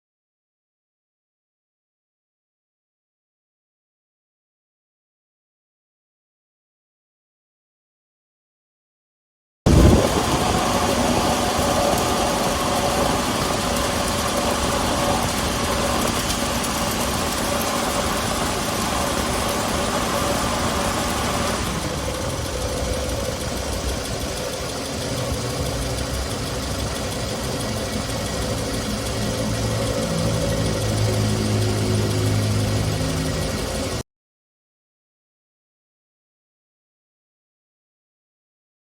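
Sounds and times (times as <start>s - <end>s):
car engine idling: 9.7s - 34.0s.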